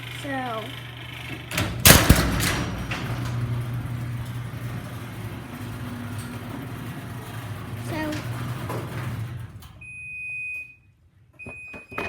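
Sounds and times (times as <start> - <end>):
garage door opener clunks: 0.0 - 10.7
garage door motor humming: 0.0 - 10.9.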